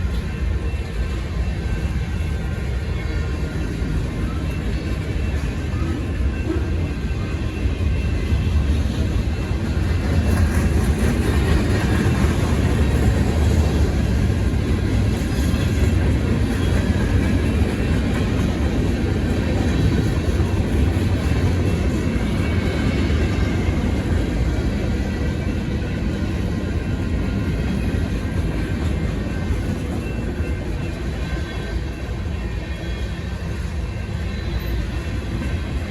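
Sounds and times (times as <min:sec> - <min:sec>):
freight train wheels rumbling on rails: 0:00.0 - 0:35.9.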